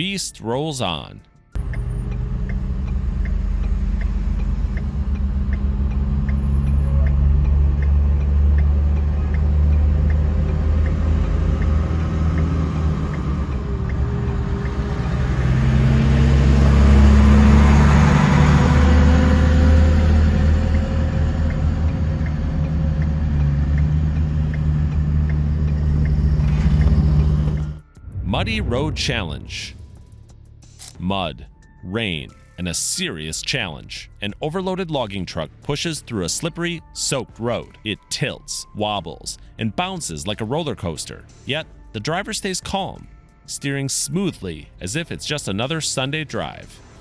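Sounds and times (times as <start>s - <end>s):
heavy truck engine running: 1.6s - 30.3s.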